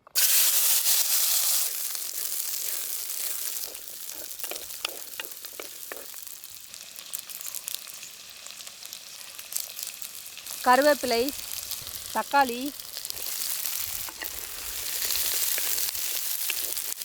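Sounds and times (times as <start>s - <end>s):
onions sizzling in hot oil: 0.0s - 17.0s
stirring clicks and taps: 3.2s - 6.2s.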